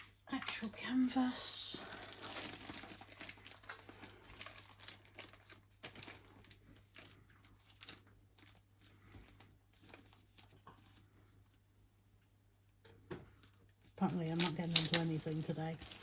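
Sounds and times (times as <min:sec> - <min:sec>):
packaging crinkling and rustling: 0:00.5 - 0:11.1, 0:13.9 - 0:16.0.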